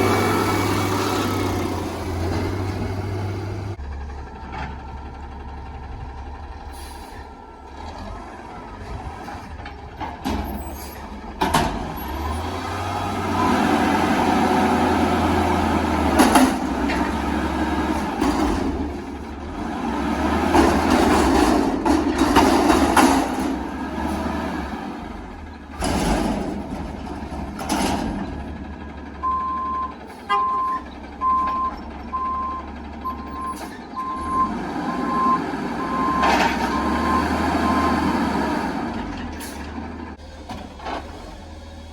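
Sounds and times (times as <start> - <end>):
garbage truck engine revving: 0.0 - 41.9
reversing alarm beeping: 29.2 - 38.2.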